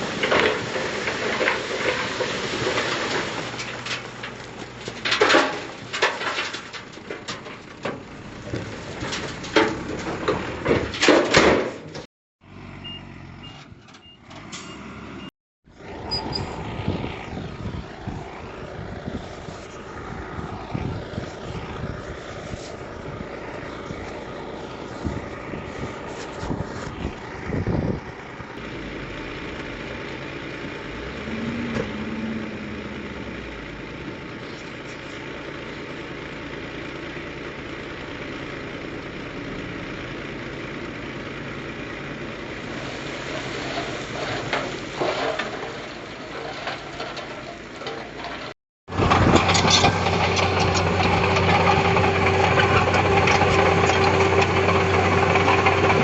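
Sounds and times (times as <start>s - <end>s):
diesel engine running: 0.0s - 56.0s
metal knocks and clanks: 0.2s - 12.1s.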